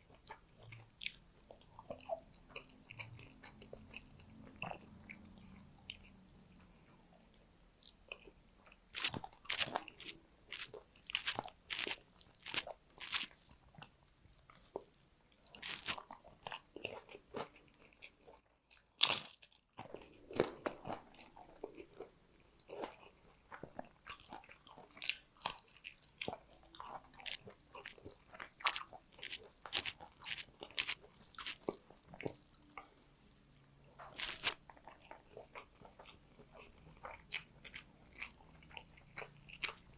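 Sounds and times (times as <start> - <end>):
crunchy chewing: 0.0 - 6.2, 7.8 - 39.9.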